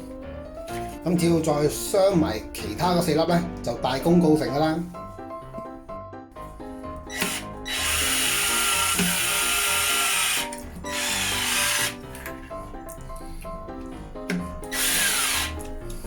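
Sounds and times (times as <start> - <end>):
background music: 0.0 - 16.0
electric screwdriver driving screws: 7.1 - 12.4, 14.3 - 15.8.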